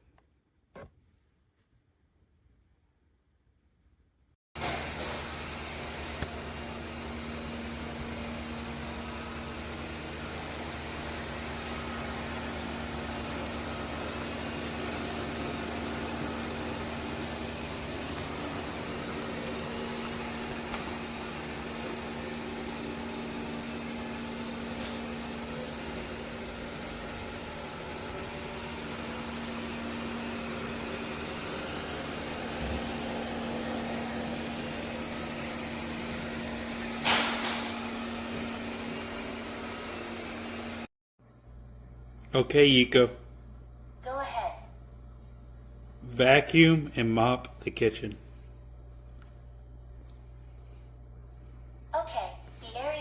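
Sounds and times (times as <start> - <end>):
robot vacuum humming: 4.6 - 37.2, 37.8 - 40.9.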